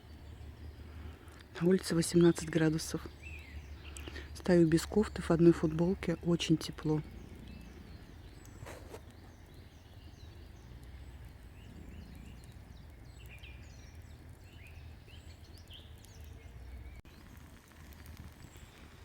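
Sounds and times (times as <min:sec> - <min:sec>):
small birds chirping and whistling: 0:00.0 - 0:19.0
steady low rumble: 0:02.1 - 0:08.6, 0:09.3 - 0:15.4.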